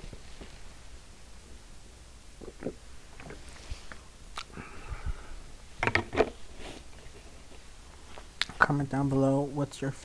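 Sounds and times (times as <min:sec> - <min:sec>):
wet lip smacks and clicks: 0:02.4 - 0:04.6.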